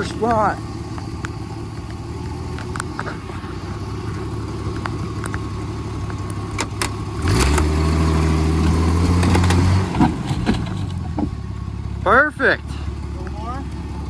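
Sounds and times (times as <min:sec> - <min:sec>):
car engine running: 0:00.0 - 0:14.0
sharp knocks: 0:09.0 - 0:11.4.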